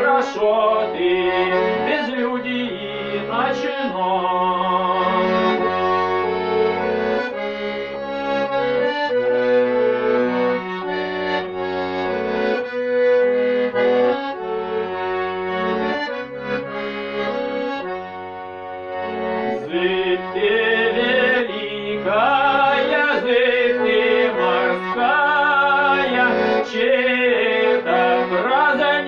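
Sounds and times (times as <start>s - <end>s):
man singing with vibrato: 0.0s - 5.7s, 19.5s - 29.0s
accordion playing chords: 0.0s - 29.0s.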